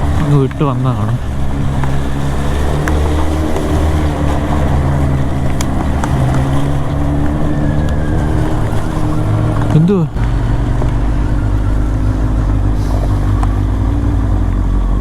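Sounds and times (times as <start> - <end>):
motorcycle engine running: 0.0 - 15.0
wind noise: 0.0 - 15.0.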